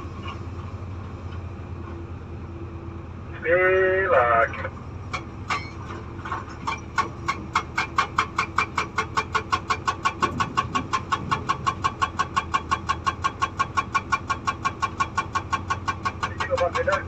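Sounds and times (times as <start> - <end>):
excavator engine running: 0.0 - 17.0
hydraulic breaker hammering stone: 7.0 - 17.0.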